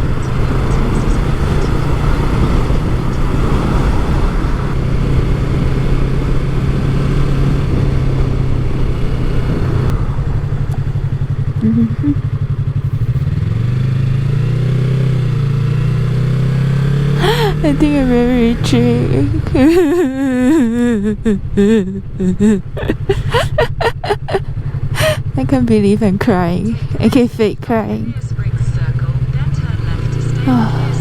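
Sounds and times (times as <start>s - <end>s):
wind rush: 0.0s - 11.6s
motorcycle engine running: 0.0s - 31.0s.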